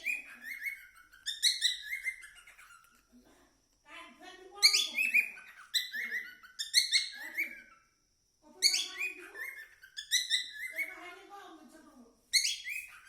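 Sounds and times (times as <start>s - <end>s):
cockatiel chirping and whistling: 0.0s - 2.9s, 4.7s - 7.8s, 8.6s - 11.0s, 12.4s - 13.0s.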